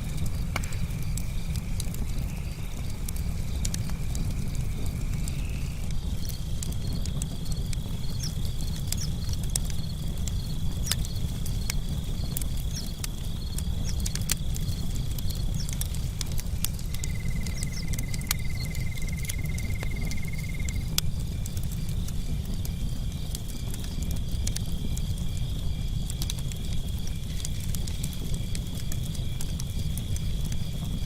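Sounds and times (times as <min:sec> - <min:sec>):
campfire crackling: 0:00.0 - 0:31.0
crickets trilling: 0:00.0 - 0:31.0.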